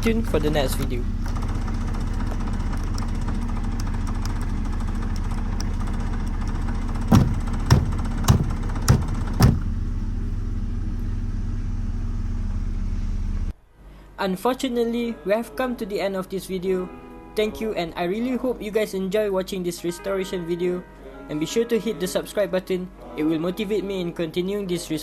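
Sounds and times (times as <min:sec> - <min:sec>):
car engine idling: 0:00.0 - 0:13.5
sharp knocks: 0:06.2 - 0:09.8.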